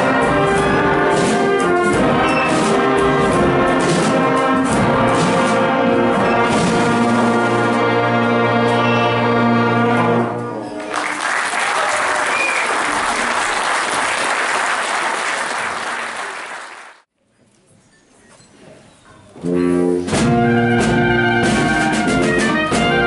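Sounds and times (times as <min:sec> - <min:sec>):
wind band brass chord: 0:00.0 - 0:10.6, 0:19.4 - 0:23.0
audience applause: 0:10.8 - 0:17.0.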